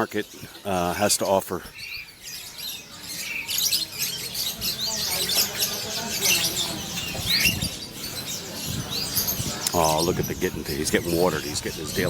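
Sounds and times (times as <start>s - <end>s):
caged songbirds chirping: 0.0s - 12.0s
faint murmur of voices: 0.0s - 12.0s.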